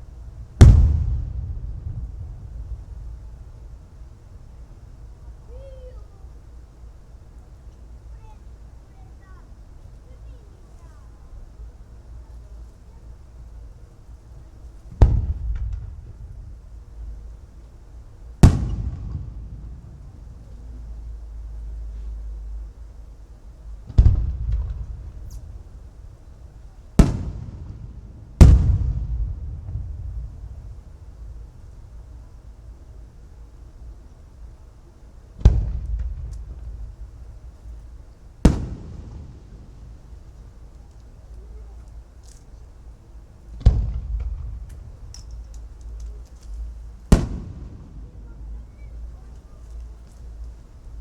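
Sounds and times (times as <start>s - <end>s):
firework booms: 0.0s - 4.7s, 14.9s - 17.4s, 18.4s - 20.6s, 23.7s - 26.2s, 26.9s - 32.4s, 35.4s - 40.8s, 43.5s - 45.5s, 46.6s - 49.8s
low rumble: 0.0s - 5.5s, 27.6s - 32.7s
faint firework crackles: 0.0s - 51.0s.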